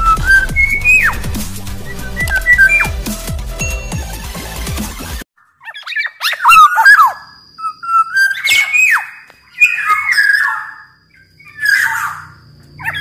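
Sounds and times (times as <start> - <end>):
bird singing fluty whistles: 0.0 - 3.1, 5.8 - 13.0
harsh bird notes: 0.0 - 5.1.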